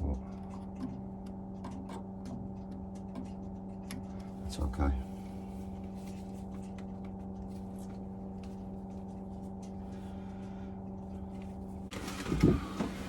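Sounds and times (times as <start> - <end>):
vacuum cleaner motor humming: 11.3 - 13.0.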